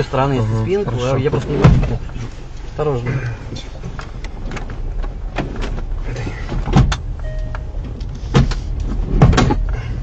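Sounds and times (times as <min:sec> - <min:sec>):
car rumble: 0:00.0 - 0:10.0
car seat adjuster clicks and knocks: 0:03.8 - 0:09.8
thin tone: 0:07.2 - 0:08.3.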